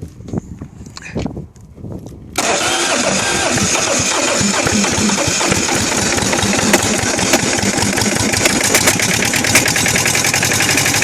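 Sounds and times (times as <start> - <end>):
diesel engine clattering: 2.4 - 11.0.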